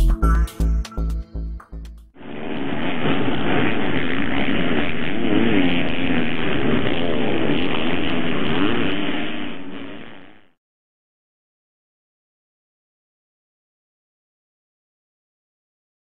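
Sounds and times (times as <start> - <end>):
dirt bike engine revving: 2.2 - 10.6.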